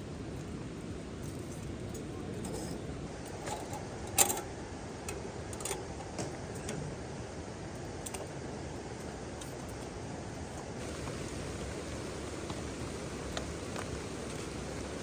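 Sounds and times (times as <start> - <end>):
rain falling: 10.8 - 15.0.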